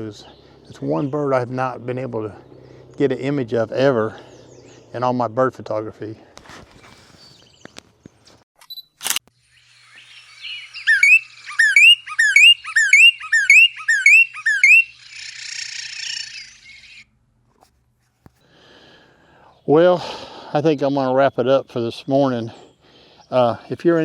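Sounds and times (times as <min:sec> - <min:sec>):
sharp click: 0:08.6 - 0:09.4
songbird whistled song: 0:09.4 - 0:17.0
harsh buzzy bird chatter: 0:09.5 - 0:17.1.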